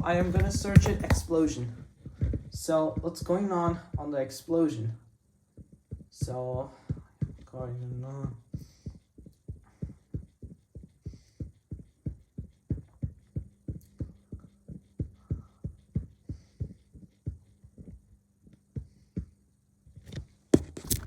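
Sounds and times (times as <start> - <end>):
low thumping: 0.0 - 3.1.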